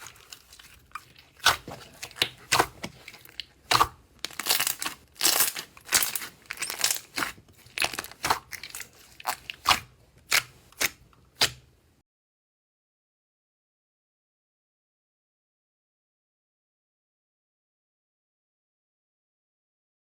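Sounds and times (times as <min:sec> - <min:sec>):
slime crinkling: 0:00.0 - 0:11.6.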